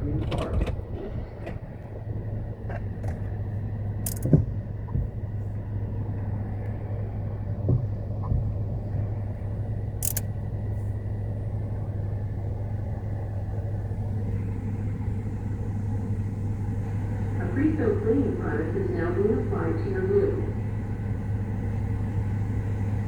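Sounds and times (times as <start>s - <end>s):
car engine idling: 0.0s - 23.0s
sharp clicks: 4.0s - 4.4s, 10.0s - 10.3s.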